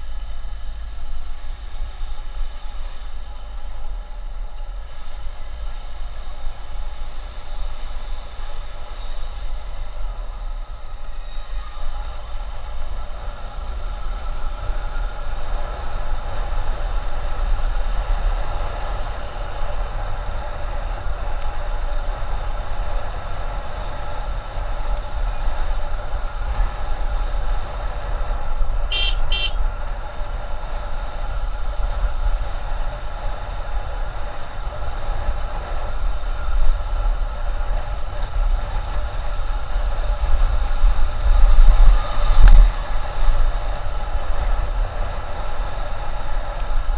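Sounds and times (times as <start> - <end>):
wind rumble on microphone: 0.0 - 46.9
horn beeps: 28.9 - 29.6.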